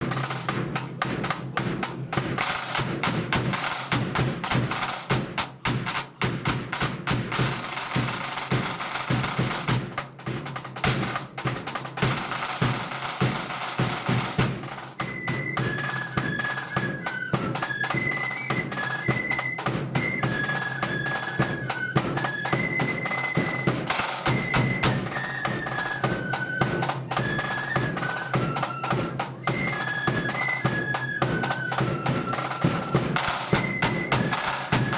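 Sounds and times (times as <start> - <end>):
snare drum rolls: 0.0 - 34.9
flutes playing high melody: 12.3 - 34.9.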